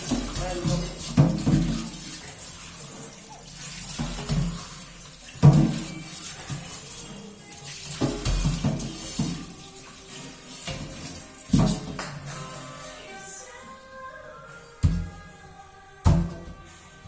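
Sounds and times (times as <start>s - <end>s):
tap water running into sink: 0.0s - 12.4s
knocks and clatter of objects: 5.4s - 6.8s, 7.9s - 9.5s, 10.7s - 12.3s.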